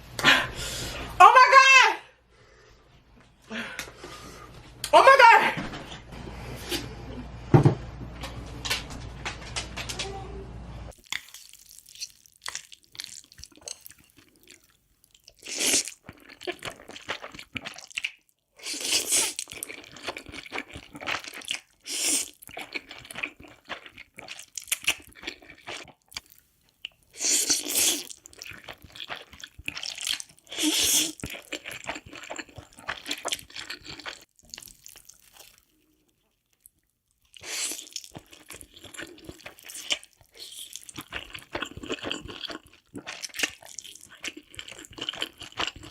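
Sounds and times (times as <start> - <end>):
wet chewing: 10.9 - 45.9
loud noodle slurps: 18.6 - 19.5, 27.2 - 28.2, 30.4 - 31.3.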